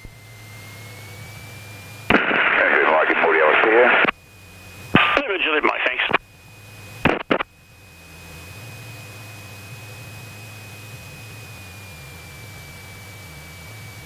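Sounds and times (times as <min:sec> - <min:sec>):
aircraft engine idling hum: 0:00.0 - 0:14.0
electronic whine: 0:00.0 - 0:14.0
radio clicks: 0:02.1 - 0:04.2, 0:05.0 - 0:06.2, 0:07.1 - 0:07.5.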